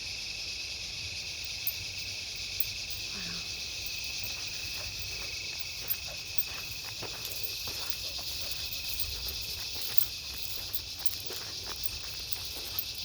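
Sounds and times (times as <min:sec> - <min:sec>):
insects trilling: 0:00.0 - 0:13.0
footsteps on a trail: 0:03.7 - 0:13.0.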